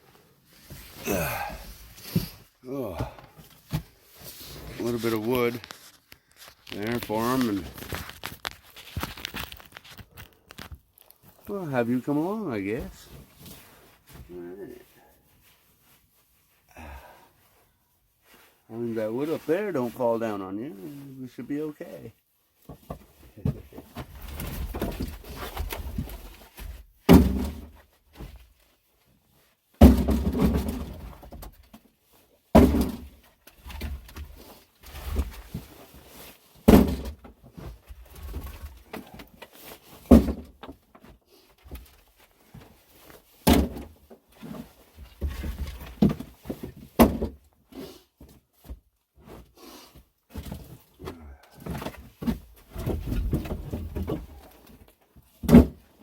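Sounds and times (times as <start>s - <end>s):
wood knocking and rustling: 50.3s - 56.0s.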